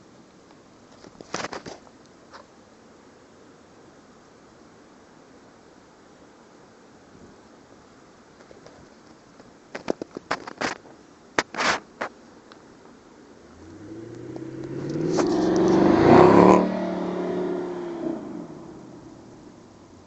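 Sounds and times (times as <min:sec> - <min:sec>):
car driving past: 0:13.5 - 0:19.4.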